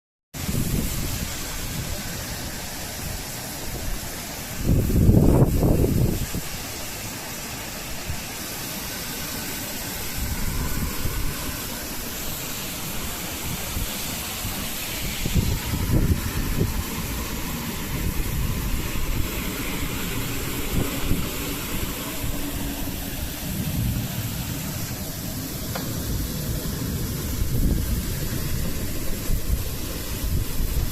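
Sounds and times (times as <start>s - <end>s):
wind buffeting microphone: 0.4s - 8.4s, 9.2s - 30.9s
strong storm wind: 0.4s - 30.9s.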